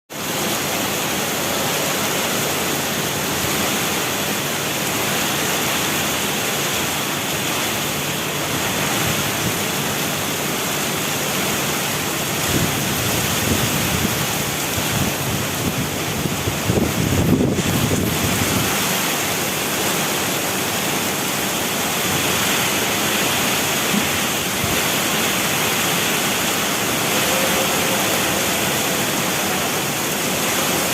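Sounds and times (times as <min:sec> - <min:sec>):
heavy rain hiss: 0:00.1 - 0:30.9
wind buffeting microphone: 0:12.4 - 0:18.9.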